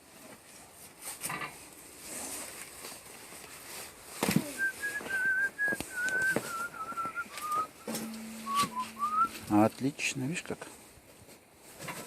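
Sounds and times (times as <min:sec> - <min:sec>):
person whistling a slow tune: 0:04.4 - 0:09.5.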